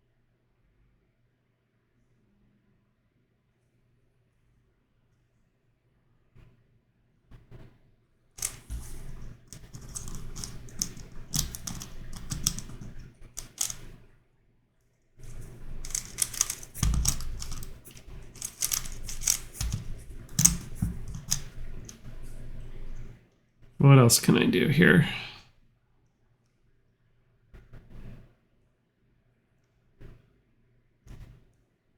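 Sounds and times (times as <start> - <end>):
plastic puzzle clicking: 8.4 - 14.0, 15.2 - 22.6.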